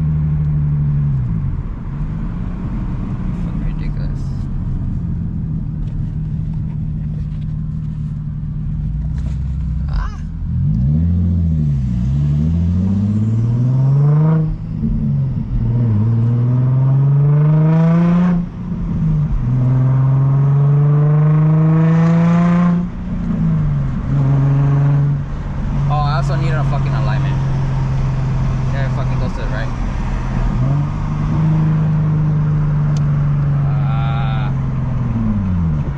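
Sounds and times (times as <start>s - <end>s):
car engine revving through gears: 10.4s - 35.9s.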